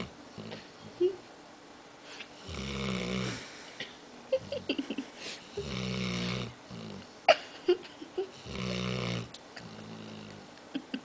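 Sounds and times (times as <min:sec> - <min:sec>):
dog snoring: 0:00.0 - 0:00.7, 0:02.4 - 0:03.6, 0:05.5 - 0:07.1, 0:08.3 - 0:10.5.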